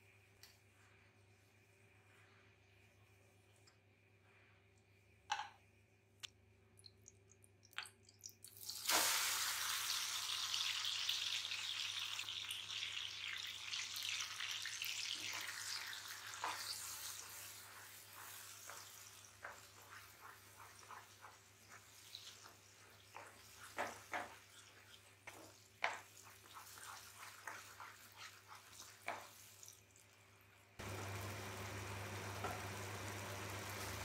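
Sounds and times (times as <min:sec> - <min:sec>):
banana sizzling in hot fat: 0:08.6 - 0:30.1, 0:30.8 - 0:34.0
wooden spatula scraping pan: 0:16.4 - 0:29.3.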